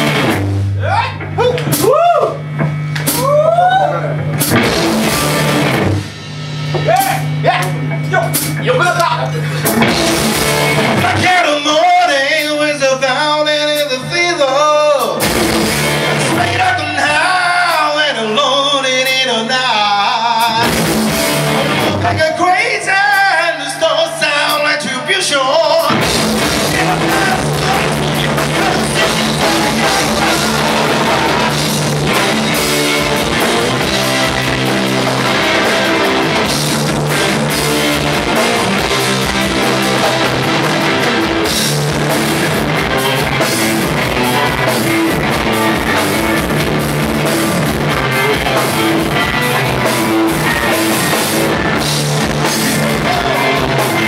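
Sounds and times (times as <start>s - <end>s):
drum kit: 0.0s - 14.1s, 14.9s - 18.1s, 19.8s - 23.5s, 25.6s - 54.0s
bass guitar: 0.0s - 24.4s, 25.2s - 54.0s
electric guitar: 0.0s - 54.0s
person singing: 21.9s - 34.2s, 52.4s - 54.0s.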